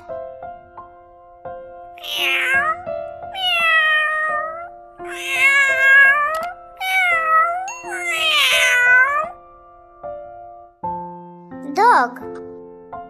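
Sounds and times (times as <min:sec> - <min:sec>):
light background music: 0:00.0 - 0:13.0
cat meowing: 0:02.0 - 0:09.4.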